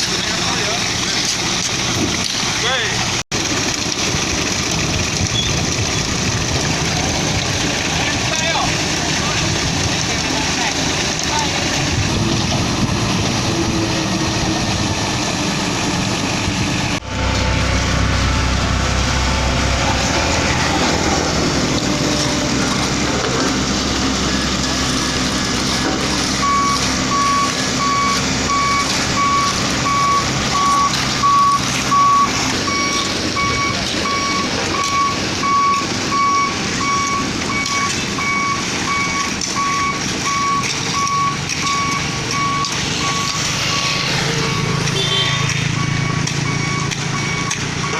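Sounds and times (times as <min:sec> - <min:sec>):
diesel truck engine running: 0:00.0 - 0:47.9
reverse alarm beeping: 0:26.4 - 0:47.9.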